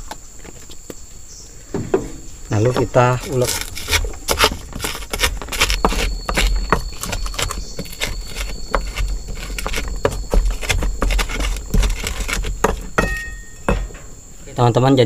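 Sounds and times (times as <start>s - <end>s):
pestle pounding in a mortar: 2.6s - 14.0s.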